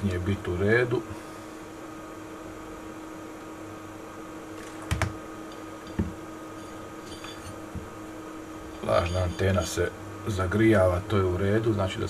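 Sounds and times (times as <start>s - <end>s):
equipment hum: 0.0s - 12.0s
faint held tone: 6.5s - 7.7s, 8.6s - 9.8s.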